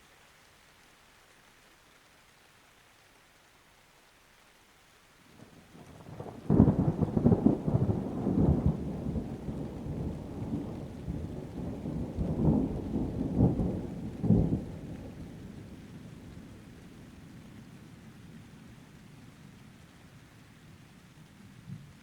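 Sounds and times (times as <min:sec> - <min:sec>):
faint rain hiss: 0:00.0 - 0:22.0
thunder rumbling and clapping: 0:05.7 - 0:17.0.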